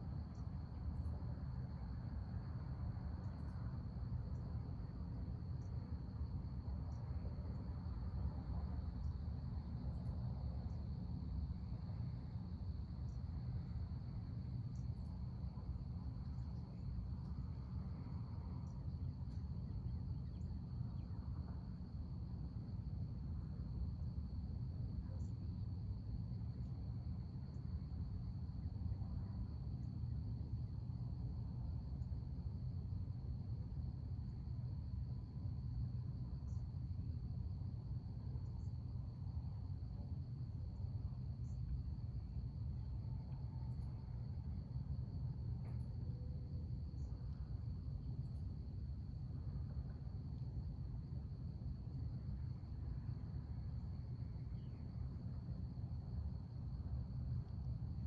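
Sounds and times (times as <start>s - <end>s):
low background rumble: 0.0s - 58.0s
crickets trilling: 31.4s - 58.0s.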